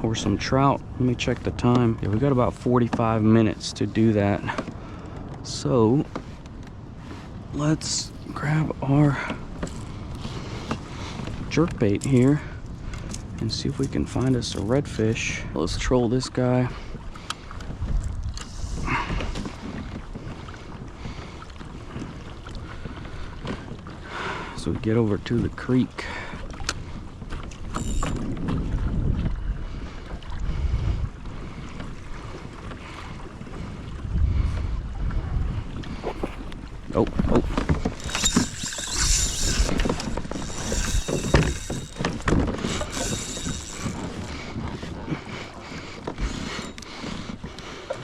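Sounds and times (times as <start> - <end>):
wind rumbling on microphone: 0.0 - 24.2, 26.3 - 48.0
water splashing against hull: 26.2 - 48.0
fishing reel ticking and whirring: 27.5 - 28.6, 36.1 - 47.4.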